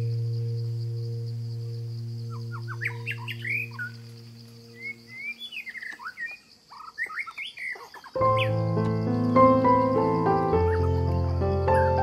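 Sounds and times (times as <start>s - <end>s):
low held tone: 0.0s - 5.1s
birds chirping: 0.0s - 12.0s.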